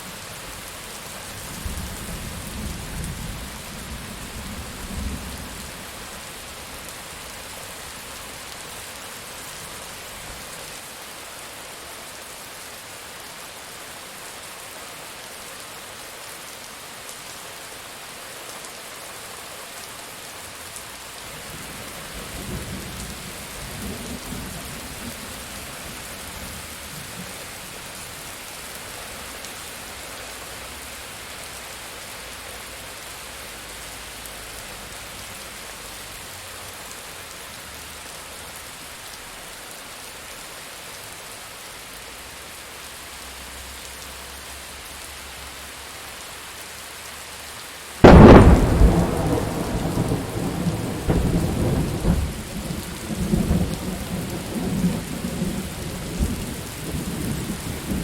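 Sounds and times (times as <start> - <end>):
steady rain falling: 0.0 - 58.0
thunderclap and rolling thunder: 48.0 - 58.0.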